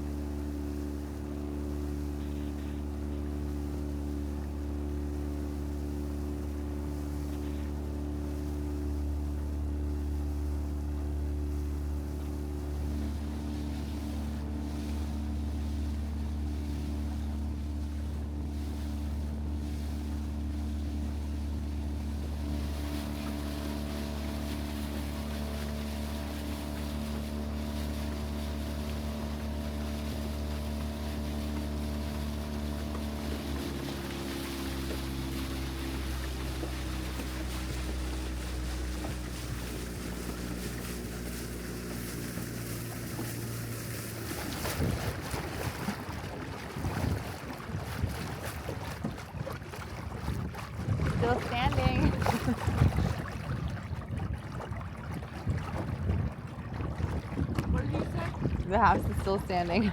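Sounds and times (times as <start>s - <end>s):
outboard motor running: 0.0s - 59.9s
water noise: 0.0s - 59.9s
wind noise: 44.4s - 45.6s, 50.1s - 59.9s.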